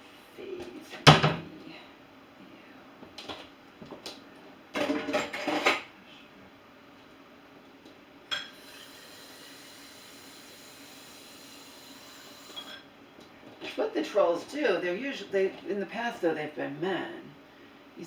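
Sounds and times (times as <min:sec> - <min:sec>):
dishes clattering: 0:04.8 - 0:05.9.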